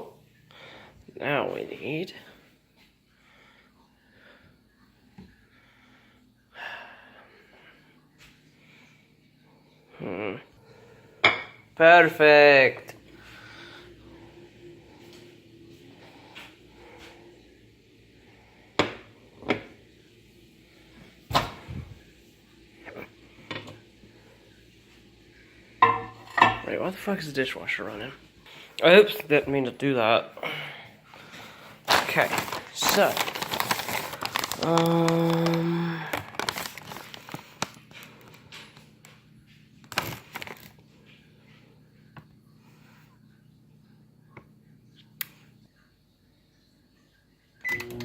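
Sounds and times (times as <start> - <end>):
faint low hum: 0.0 - 48.0
kitchen things knocking and clunking: 25.8 - 26.7
kitchen rustling and clicking: 31.2 - 41.3.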